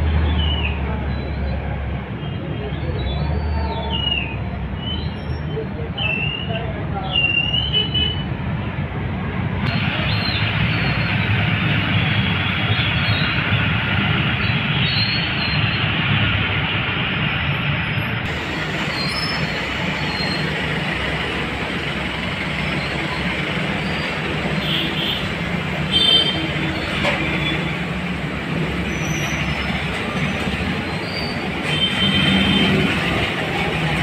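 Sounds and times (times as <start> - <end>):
train rumbling past: 8.6 - 34.0
motorbike engines idling: 9.7 - 34.0.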